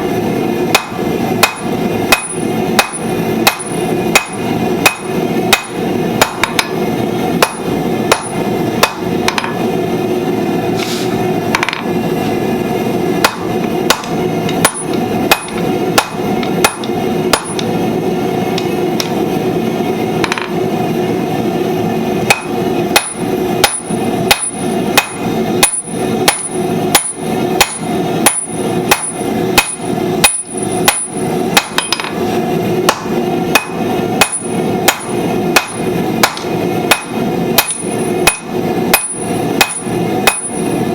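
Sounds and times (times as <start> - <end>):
hammer striking steel on anvil: 0.7 - 6.8, 7.4 - 9.6, 13.2 - 17.8, 20.2 - 20.6, 22.3 - 32.2, 32.8 - 40.8.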